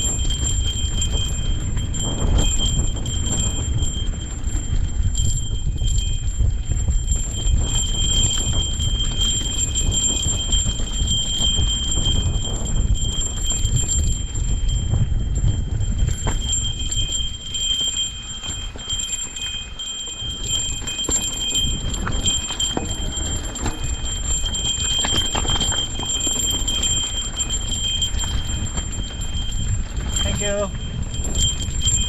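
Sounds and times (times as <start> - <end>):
bike clicks and knocks on trail: 0.0 - 32.0
wind buffeting microphone: 0.0 - 32.0.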